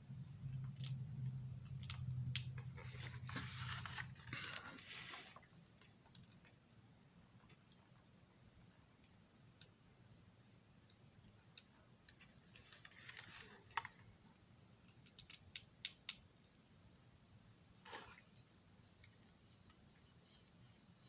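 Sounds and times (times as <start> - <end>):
soft rustle: 2.7 - 5.6, 12.2 - 14.0
small sharp clicks: 14.9 - 16.6.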